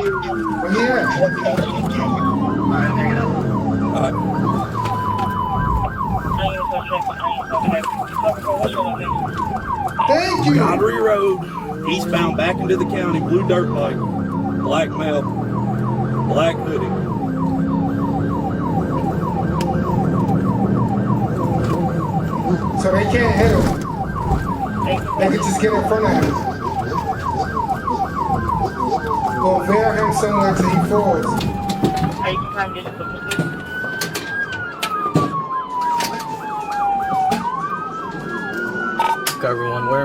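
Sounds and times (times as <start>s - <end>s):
police siren yelp: 0.0s - 40.0s
road noise: 0.0s - 40.0s
car engine running: 8.3s - 32.2s.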